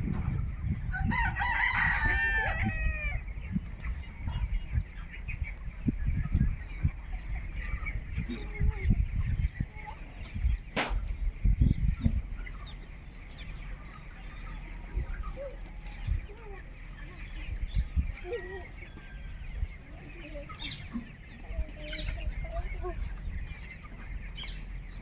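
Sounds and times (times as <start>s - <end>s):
faint chicken clucks: 0.0s - 25.0s
rooster crowing: 0.9s - 3.2s.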